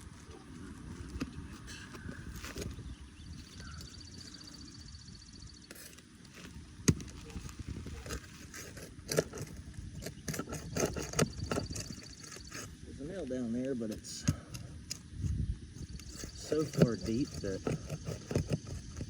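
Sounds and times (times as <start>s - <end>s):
tools knocking on shingles: 15.9s - 19.0s.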